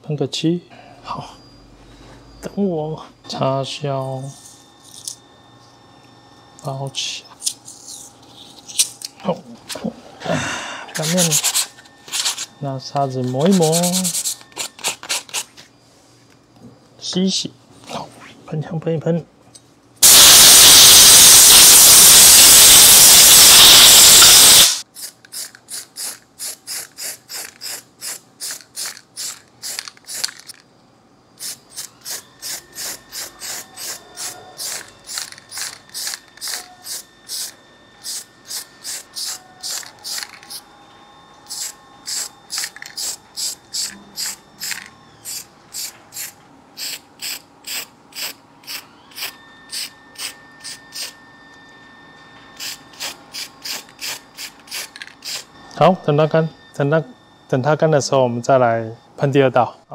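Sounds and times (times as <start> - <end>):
spray gun hissing: 20.0 - 24.8.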